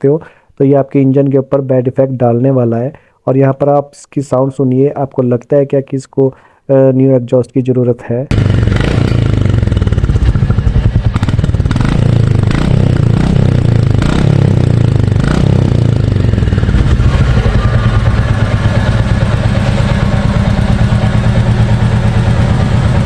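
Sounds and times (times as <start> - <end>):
motorcycle engine pulsing: 8.3 - 23.0.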